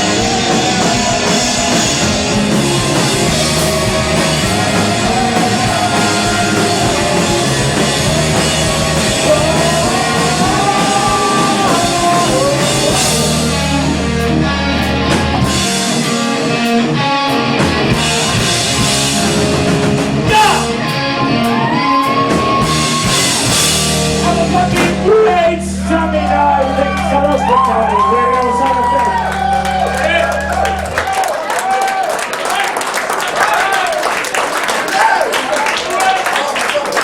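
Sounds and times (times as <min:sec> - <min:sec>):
drums with cymbal crashes: 0:00.0 - 0:14.2, 0:17.6 - 0:20.7, 0:22.0 - 0:25.1
person singing: 0:00.0 - 0:16.7
electric guitars: 0:00.0 - 0:31.1.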